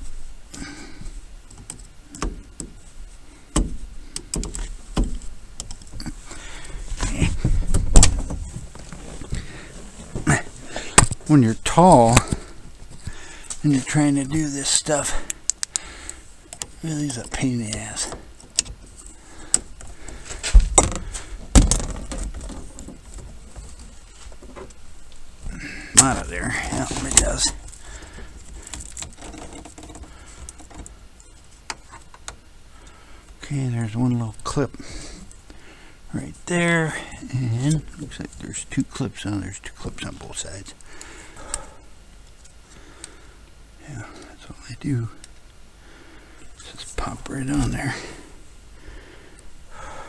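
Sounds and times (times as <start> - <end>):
clicks and knocks of plastic parts: 1.5 - 2.8, 3.5 - 11.3, 12.0 - 13.6, 15.2 - 24.8, 25.9 - 31.0
scraping rustle: 1.8 - 15.3, 16.4 - 32.3
heavy dull thumps: 3.5 - 5.3, 5.9 - 11.3, 19.4 - 23.7.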